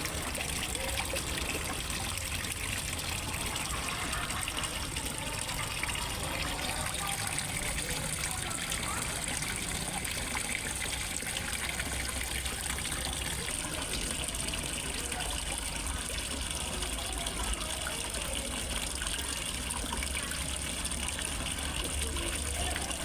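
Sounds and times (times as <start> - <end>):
water gushing into a pond: 0.0 - 23.0.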